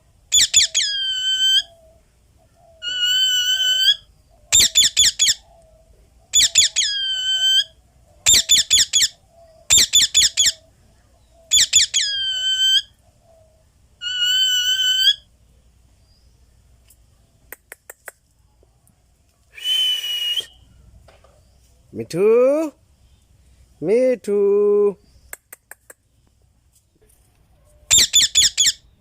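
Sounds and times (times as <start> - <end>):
parakeet calling: 0.3 - 1.9, 2.7 - 5.6, 6.3 - 10.8, 11.4 - 13.4, 14.0 - 15.3, 27.9 - 29.0.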